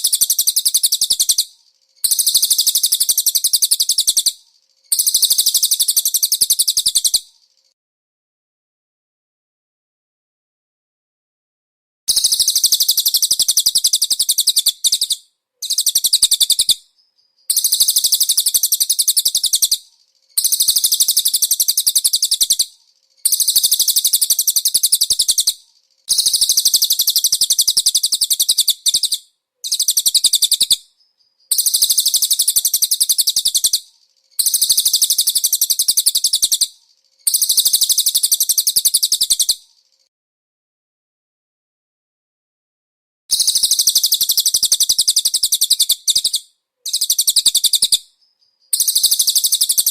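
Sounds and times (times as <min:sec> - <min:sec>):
bird chattering trills: 0:00.0 - 0:07.2, 0:17.5 - 0:19.8, 0:20.4 - 0:30.8, 0:31.5 - 0:33.8, 0:34.4 - 0:36.7, 0:37.3 - 0:39.6, 0:43.3 - 0:48.0, 0:48.7 - 0:49.9.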